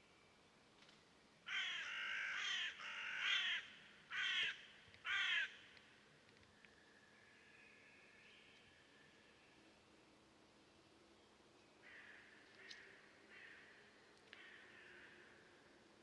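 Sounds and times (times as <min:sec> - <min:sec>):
bird cawing harshly: 0:01.5 - 0:05.5.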